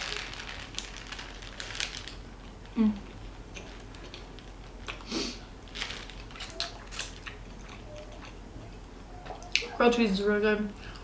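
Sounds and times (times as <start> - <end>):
person humming: 2.8 - 3.1
chewing and biting food: 5.7 - 9.7.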